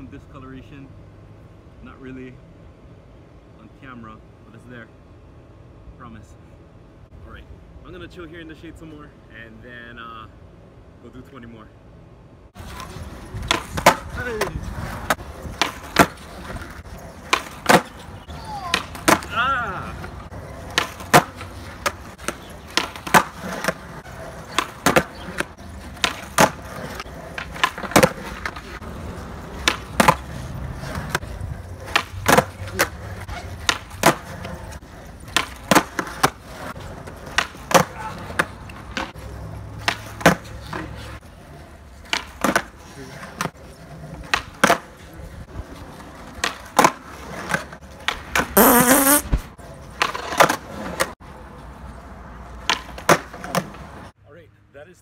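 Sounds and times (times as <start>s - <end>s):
skateboard wheels rolling: 12.5s - 54.2s
skateboard popping and landing: 12.6s - 51.2s, 52.5s - 54.1s
person crying out: 18.3s - 20.0s.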